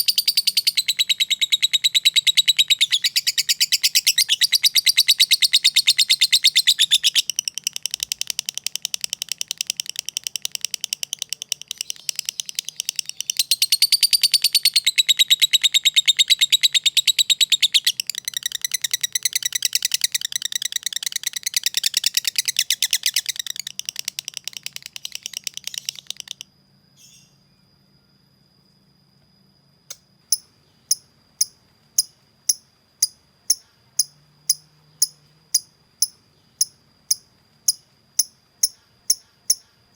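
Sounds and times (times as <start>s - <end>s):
lovebird chattering trill: 0.0s - 26.4s, 30.3s - 39.9s
regular high ticks: 6.3s - 14.8s, 17.9s - 26.5s, 29.9s - 39.7s.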